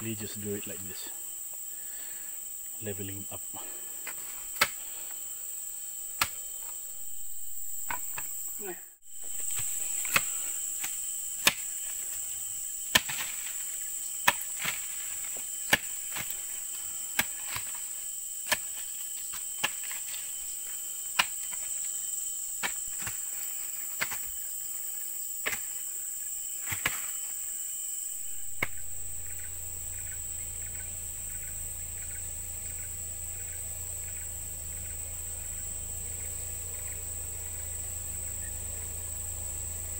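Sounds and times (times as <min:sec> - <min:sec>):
crickets chirring: 0:00.0 - 0:39.9
low steady hum: 0:06.8 - 0:12.1, 0:28.1 - 0:39.9.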